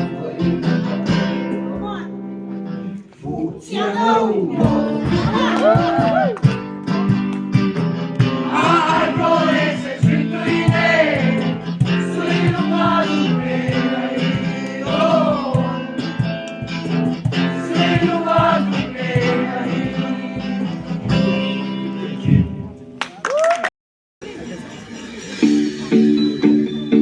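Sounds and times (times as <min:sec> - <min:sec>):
voices singing: 0:00.0 - 0:01.7, 0:03.2 - 0:06.4, 0:08.3 - 0:16.4, 0:17.3 - 0:22.3
guitar strumming: 0:00.0 - 0:03.0, 0:04.6 - 0:23.0.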